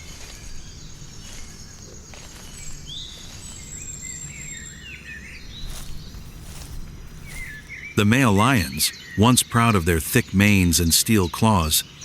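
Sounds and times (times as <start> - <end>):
high insect trill: 0.0 - 9.0
small birds chirping: 0.0 - 12.0.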